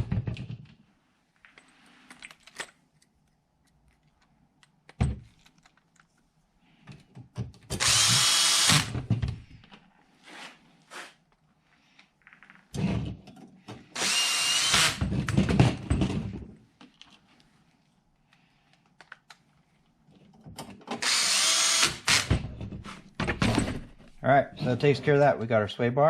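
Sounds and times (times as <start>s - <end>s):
tool and parts clicking and knocking: 0.0s - 6.2s, 6.8s - 9.8s, 12.3s - 17.2s, 20.1s - 24.2s
cordless drill driving screws: 7.7s - 9.0s, 14.0s - 15.0s, 21.0s - 22.4s.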